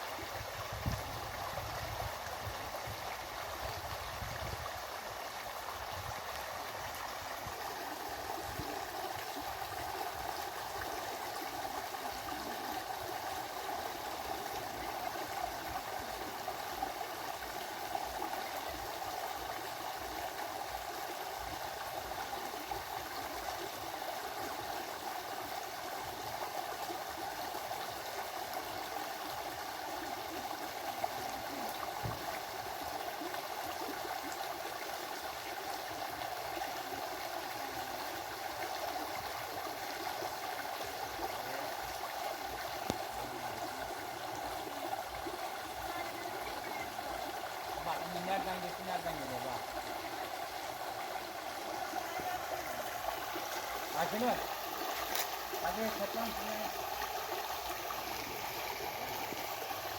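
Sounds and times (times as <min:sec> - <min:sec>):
stream water rushing and gurgling: 0:00.0 - 0:59.9.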